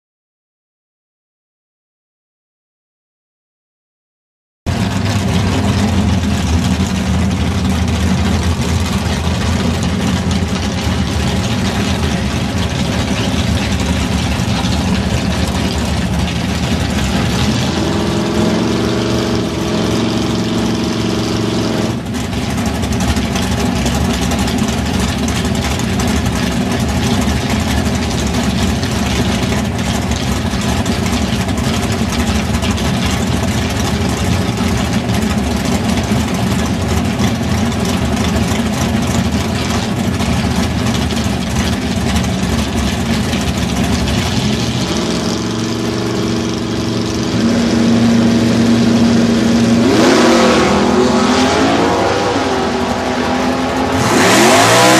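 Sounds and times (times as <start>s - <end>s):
car engine idling loudly: 4.7s - 54.9s
higher steady note: 45.0s - 54.0s.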